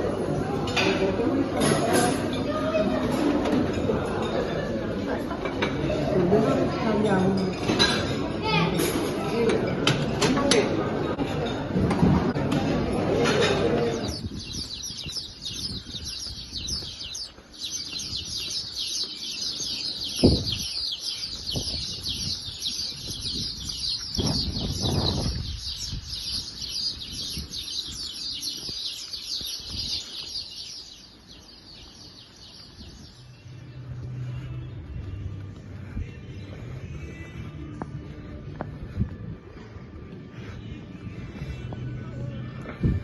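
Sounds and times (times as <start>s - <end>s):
flock of small birds chirping: 12.2s - 34.8s.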